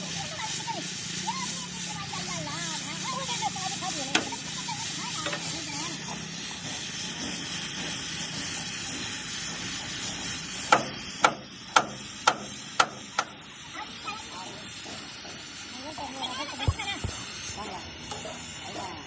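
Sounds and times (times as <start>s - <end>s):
hissing workshop noise: 0.0s - 19.0s.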